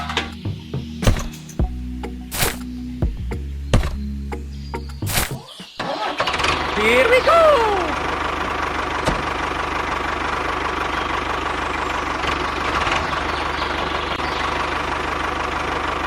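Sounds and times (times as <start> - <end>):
small engine idling: 5.8 - 16.0.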